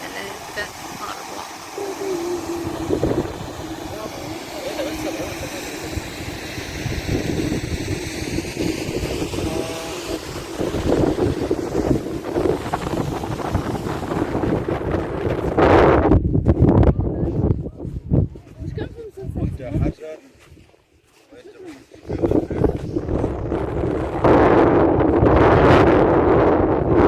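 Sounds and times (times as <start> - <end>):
faint voices: 0.0 - 6.6, 21.1 - 23.5
wind buffeting microphone: 0.0 - 20.7, 22.0 - 27.0.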